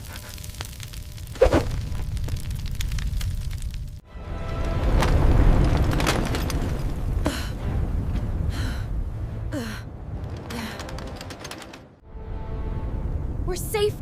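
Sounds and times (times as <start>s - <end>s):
deep low rumble: 0.1s - 4.0s.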